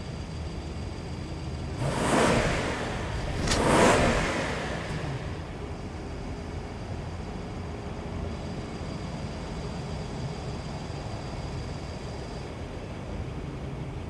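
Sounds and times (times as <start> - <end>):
engine and road rumble: 0.0 - 9.3
car passing whoosh: 1.8 - 5.8.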